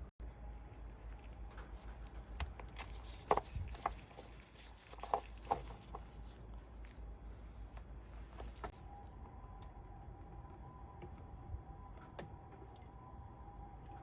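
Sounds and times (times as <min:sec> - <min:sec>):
low background hum: 0:00.0 - 0:14.0
rustling handling noises: 0:00.4 - 0:08.8.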